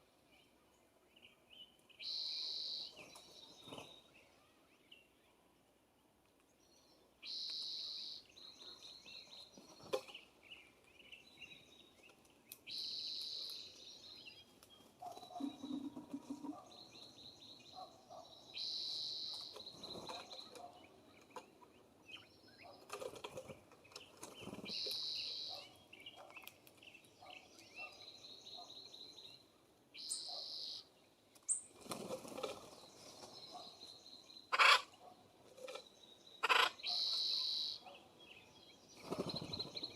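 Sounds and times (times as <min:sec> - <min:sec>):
songbird singing high phrase: 0:01.5 - 0:03.0, 0:07.2 - 0:09.3, 0:12.6 - 0:14.3, 0:16.8 - 0:20.0, 0:24.6 - 0:26.2, 0:27.4 - 0:31.6, 0:36.1 - 0:38.8.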